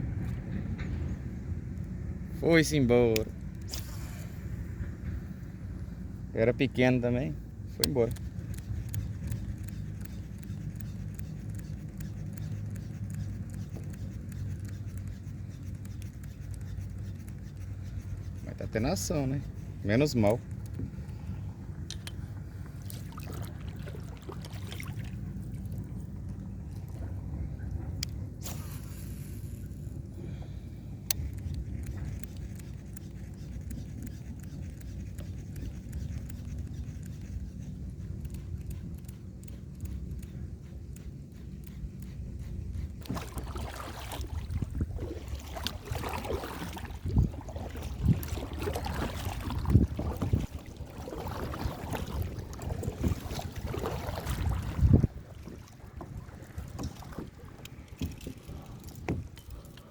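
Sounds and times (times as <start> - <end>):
faint light ticks and scratches: 6.5 - 23.0, 31.0 - 43.2, 56.6 - 59.9
wind buffeting microphone: 37.2 - 59.9
strong wind on microphone: 44.4 - 45.4, 46.8 - 55.5.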